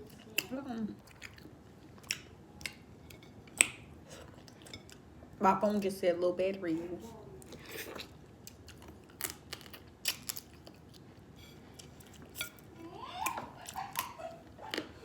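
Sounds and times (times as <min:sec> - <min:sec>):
chewing: 0:00.0 - 0:05.1, 0:07.4 - 0:15.0
crab shells cracking: 0:08.8 - 0:10.9.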